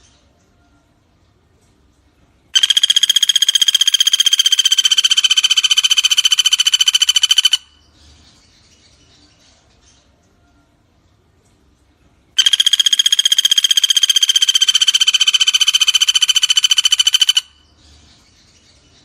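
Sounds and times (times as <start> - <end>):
woodpecker rattling call: 2.6 - 7.8, 12.4 - 17.7.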